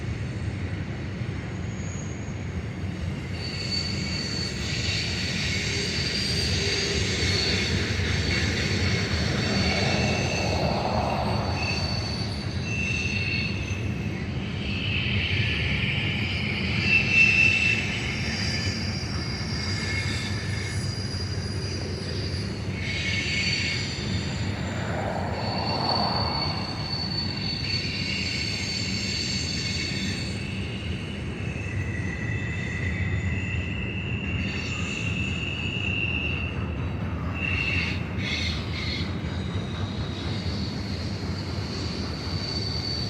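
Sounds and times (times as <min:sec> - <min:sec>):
high-pitched wheel squeal: 0:03.1 - 0:36.6, 0:40.2 - 0:43.0
freight cars rumbling past: 0:07.0 - 0:14.4, 0:22.4 - 0:29.0.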